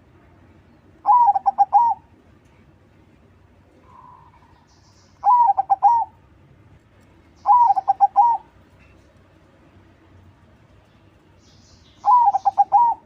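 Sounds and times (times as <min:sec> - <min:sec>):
dove cooing: 0:01.0 - 0:02.1, 0:05.2 - 0:06.2, 0:07.4 - 0:08.6, 0:12.0 - 0:13.0.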